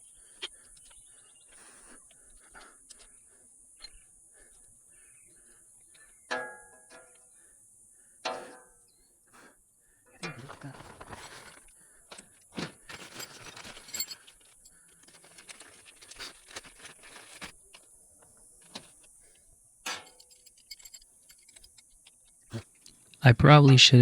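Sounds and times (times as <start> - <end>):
metallic clinks of hand tools: 12.9 - 17.5, 19.8 - 22.6.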